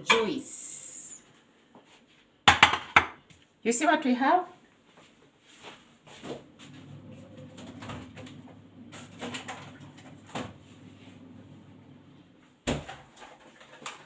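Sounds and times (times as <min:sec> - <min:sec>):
kitchen items knocking on counter: 0:02.4 - 0:03.2
low steady hum: 0:06.4 - 0:12.5.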